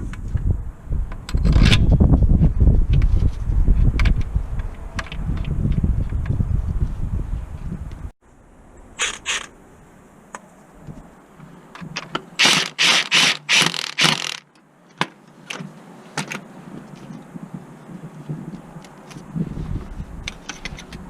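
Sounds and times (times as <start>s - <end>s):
sharp metal clicks: 12.0s - 14.6s
ratchet wrench strokes: 12.4s - 14.4s.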